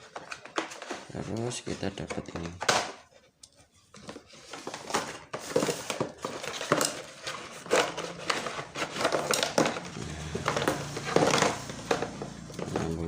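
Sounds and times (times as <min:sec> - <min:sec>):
small knocks and rattles: 0:00.0 - 0:13.0
packaging crinkling: 0:04.4 - 0:12.8.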